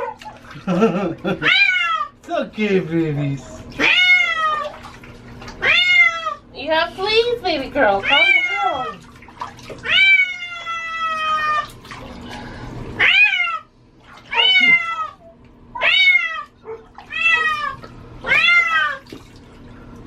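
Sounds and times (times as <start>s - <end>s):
cat meowing loudly: 3.8s - 4.7s, 5.6s - 6.4s, 9.8s - 11.7s, 13.0s - 13.7s, 14.3s - 15.2s, 15.8s - 19.0s.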